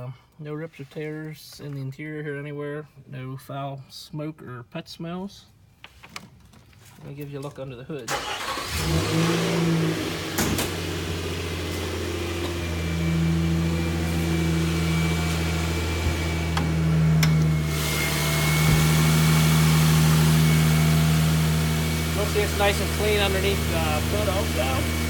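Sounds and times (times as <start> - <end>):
truck engine idling: 8.1 - 25.0.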